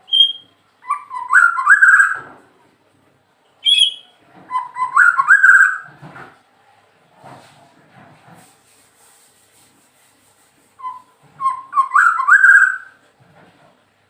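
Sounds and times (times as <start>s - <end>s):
faint high bird trill: 0.0s - 2.3s, 3.6s - 5.9s, 10.8s - 13.0s
bird fluting whistles: 0.1s - 2.2s, 3.6s - 5.9s, 10.8s - 13.0s.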